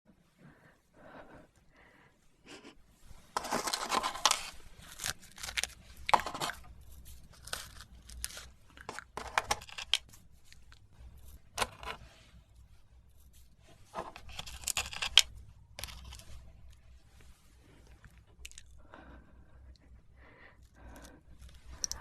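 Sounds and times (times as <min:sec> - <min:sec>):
packaging tearing and crinkling: 0:03.4 - 0:10.8, 0:14.1 - 0:16.3.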